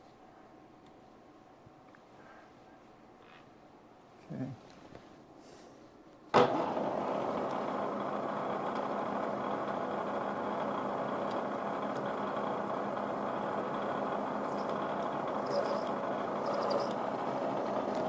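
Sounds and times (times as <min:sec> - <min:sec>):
shop machine running: 0:06.4 - 0:18.0.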